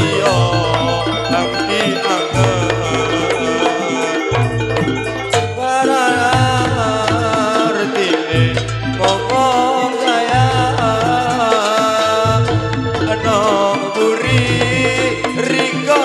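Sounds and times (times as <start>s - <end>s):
amplified band music: 0.0s - 16.0s
hand-drum percussion: 0.0s - 16.0s
deep bass notes: 2.4s - 3.6s, 4.4s - 7.6s, 8.3s - 9.6s, 10.4s - 11.5s, 12.2s - 13.5s.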